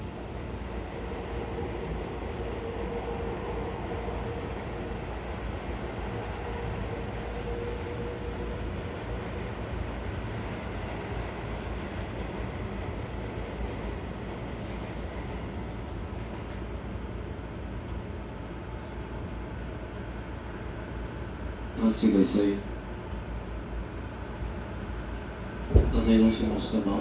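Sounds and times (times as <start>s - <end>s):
electric train whine: 0.0s - 16.3s
train wheels rumbling: 25.6s - 27.0s.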